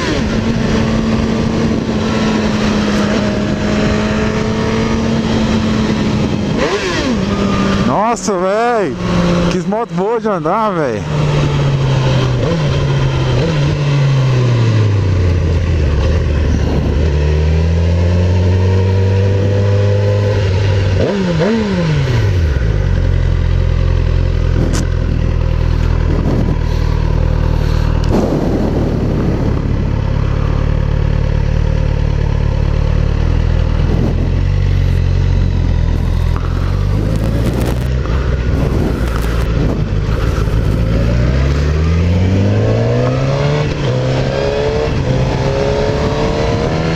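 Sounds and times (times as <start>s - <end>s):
wind noise: 0.0s - 7.9s, 11.1s - 21.5s, 24.3s - 30.7s, 33.4s - 46.9s
motorcycle engine revving: 0.0s - 46.9s.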